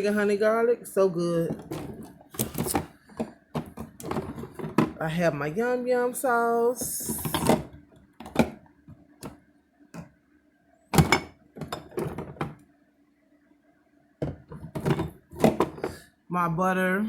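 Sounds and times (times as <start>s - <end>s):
faint steady hum: 0.0s - 17.0s
bottles and jars clunking: 1.4s - 5.1s, 6.8s - 9.4s, 10.9s - 12.6s, 14.2s - 16.0s.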